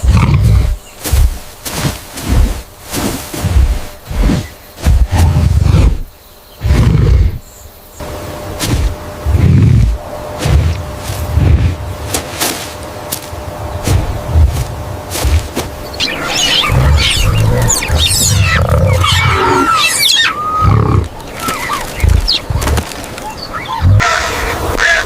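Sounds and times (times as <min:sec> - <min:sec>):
low animal rumbles: 0:13.8 - 0:24.1
high squeaky gliding animal calls: 0:15.8 - 0:25.0.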